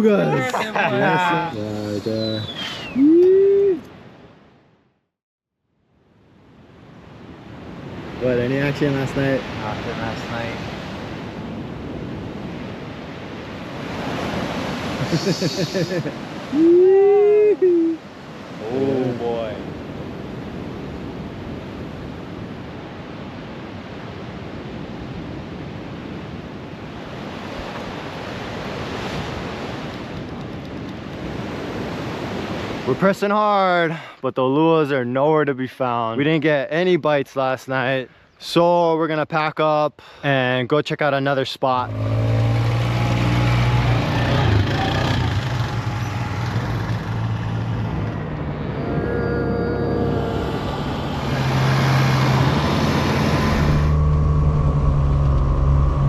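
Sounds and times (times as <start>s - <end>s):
vehicle engine drone: 41.8s - 56.0s
wind rushing: 41.9s - 56.0s.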